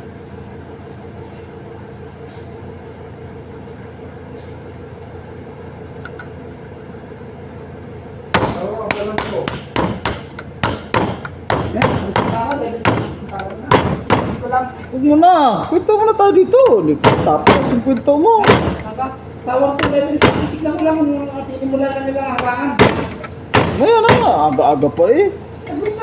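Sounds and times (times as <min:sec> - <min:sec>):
machine hum with held tones: 0:00.0 - 0:26.0
hammer striking metal: 0:08.3 - 0:14.9, 0:16.6 - 0:19.0, 0:19.8 - 0:21.0, 0:22.4 - 0:24.7.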